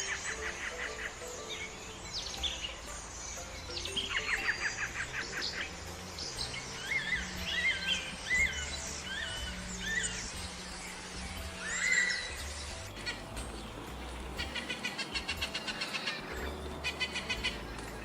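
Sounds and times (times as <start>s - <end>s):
birds singing and calling: 0.0s - 18.0s
low steady hum: 4.8s - 18.0s.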